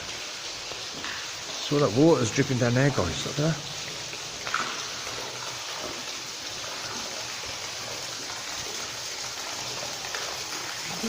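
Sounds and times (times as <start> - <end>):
water trickling and dripping: 0.0 - 11.0.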